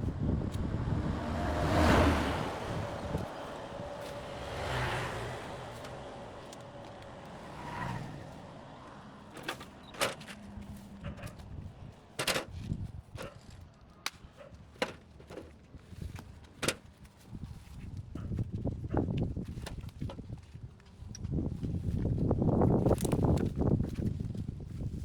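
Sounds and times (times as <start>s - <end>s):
vehicle passing: 0.0s - 12.2s.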